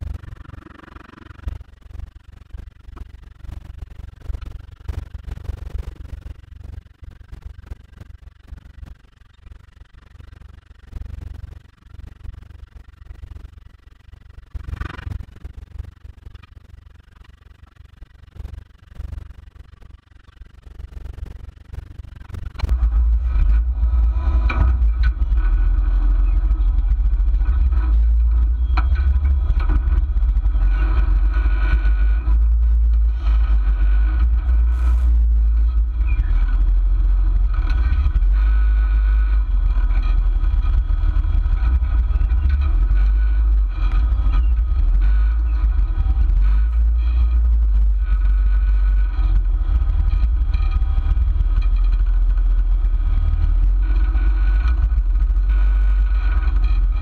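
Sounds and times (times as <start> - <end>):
engine rumbling under load: 22.2 - 57.0.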